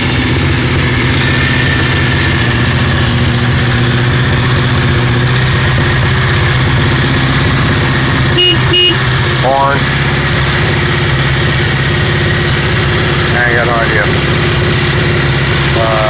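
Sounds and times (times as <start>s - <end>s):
vehicle engine idling: 0.0s - 16.0s
short horn beep: 8.3s - 9.0s.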